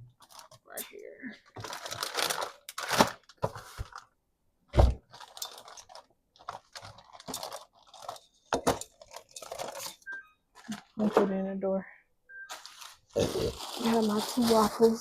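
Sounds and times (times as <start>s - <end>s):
food packages crinkling: 0.2s - 0.7s, 1.4s - 4.2s, 5.0s - 10.0s, 12.5s - 15.0s.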